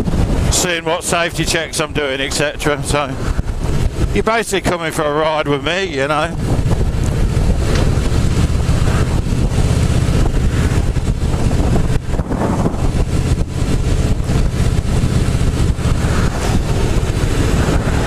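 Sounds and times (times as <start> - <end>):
motorcycle engine running: 0.0 - 18.0
wind rushing over microphone: 0.0 - 18.0.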